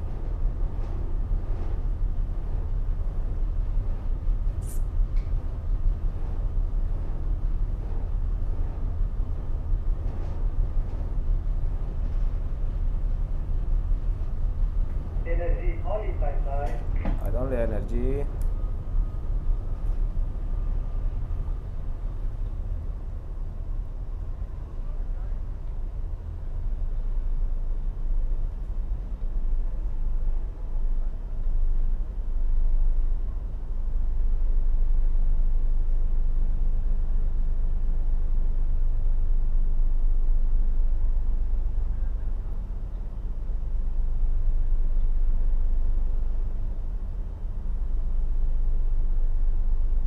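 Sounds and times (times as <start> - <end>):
ship engines rumbling: 0.0 - 50.0.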